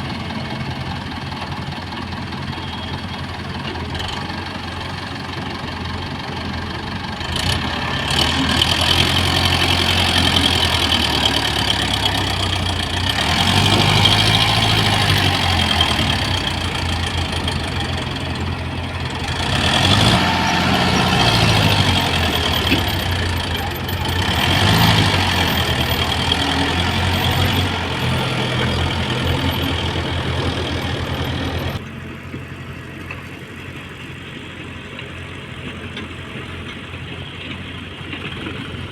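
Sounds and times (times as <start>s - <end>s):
excavator diesel engine: 0.0s - 38.9s.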